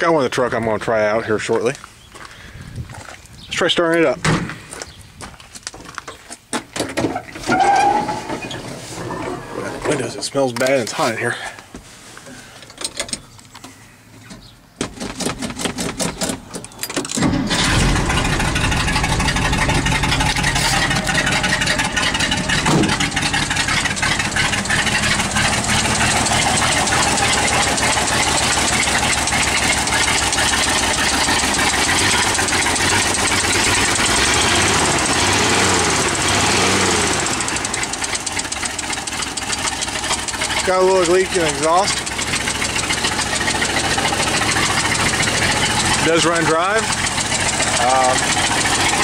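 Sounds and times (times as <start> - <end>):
engine starter cranking: 14.8 - 49.0
car engine running and revving: 17.5 - 49.0.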